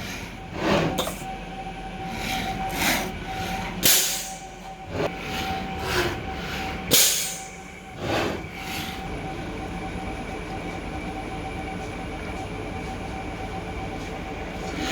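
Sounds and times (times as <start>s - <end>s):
milling machine motor whine: 0.0s - 14.9s
short rough scraping noises: 8.0s - 8.5s.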